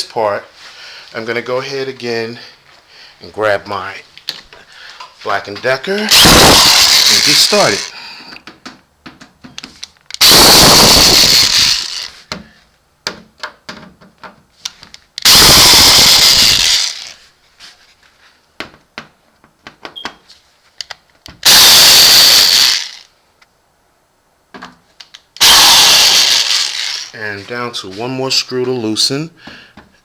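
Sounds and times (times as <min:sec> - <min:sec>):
drill-driver running: 0:06.1 - 0:07.9, 0:10.2 - 0:12.1, 0:15.2 - 0:17.2, 0:21.4 - 0:23.1, 0:25.4 - 0:27.2.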